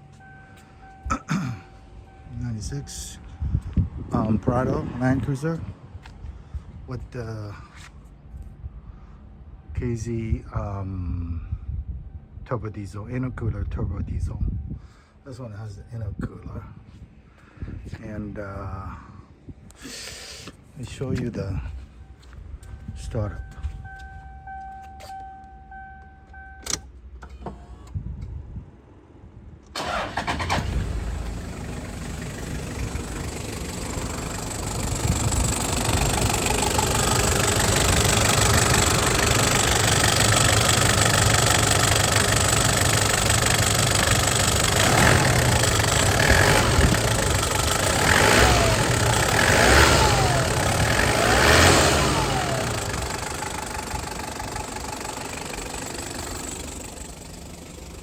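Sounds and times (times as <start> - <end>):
diesel engine starting and idling: 0.0 - 7.3, 29.7 - 58.0
engine revving: 29.8 - 58.0.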